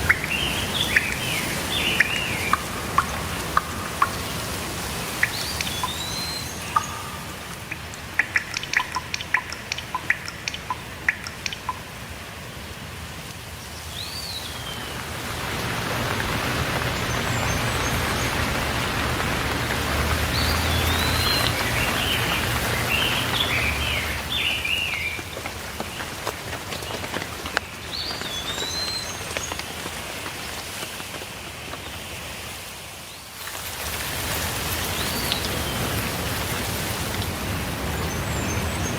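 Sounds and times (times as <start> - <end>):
songbirds chirping: 0.0 - 12.0, 13.4 - 29.8, 37.1 - 38.9
sharp drips: 0.0 - 12.4, 13.2 - 31.2, 33.4 - 38.9
steady rain falling: 0.0 - 38.9.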